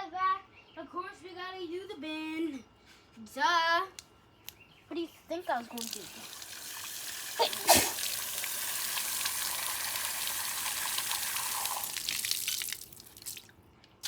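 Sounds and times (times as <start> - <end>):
tap water running and splashing: 5.6 - 13.5.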